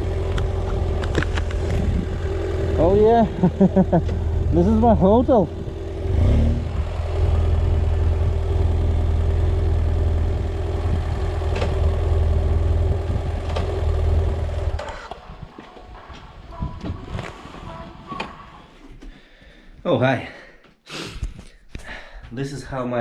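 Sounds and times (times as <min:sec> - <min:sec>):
motorcycle engine idling: 0:00.0 - 0:16.5.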